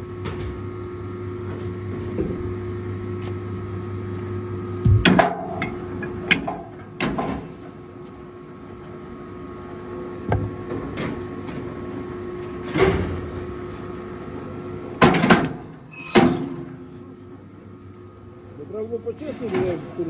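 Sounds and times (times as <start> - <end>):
log splitter humming: 4.7 - 7.0.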